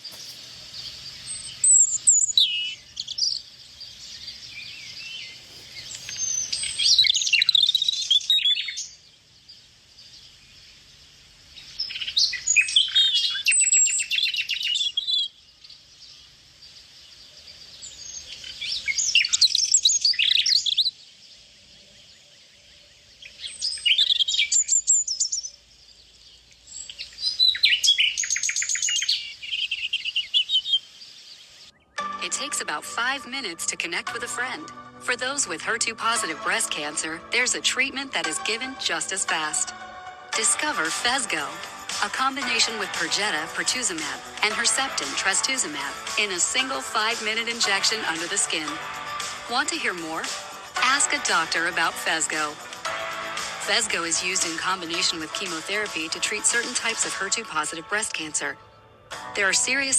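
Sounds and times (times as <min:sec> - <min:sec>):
songbird singing with trills: 0:00.0 - 0:39.8.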